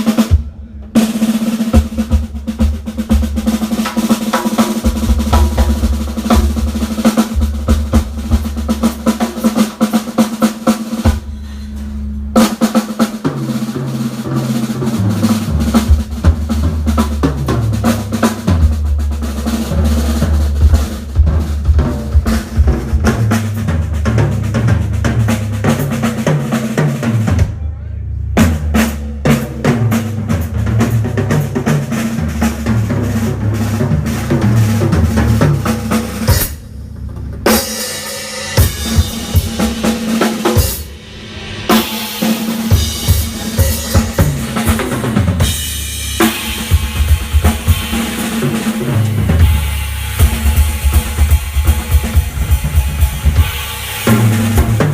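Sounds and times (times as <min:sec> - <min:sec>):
snare drum rolls: 0:00.0 - 0:11.2, 0:38.6 - 0:54.9
live band playing: 0:00.0 - 0:27.6, 0:28.4 - 0:54.9
bass drum hits: 0:00.0 - 0:37.7, 0:38.4 - 0:54.9
electric bass line: 0:04.7 - 0:10.2, 0:10.9 - 0:54.9.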